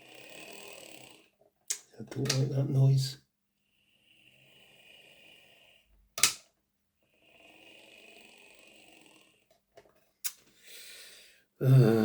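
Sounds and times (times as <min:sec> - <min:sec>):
sharp click: 0:06.2 - 0:06.4.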